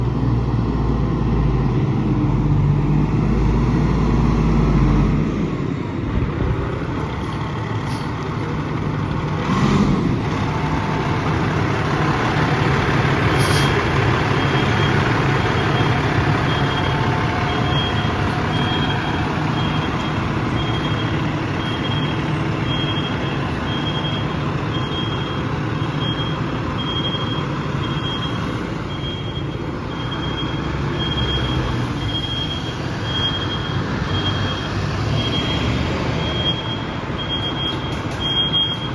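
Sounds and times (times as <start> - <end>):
diesel engine running: 0.0 - 38.9
reversing alarm beeping: 13.4 - 38.9.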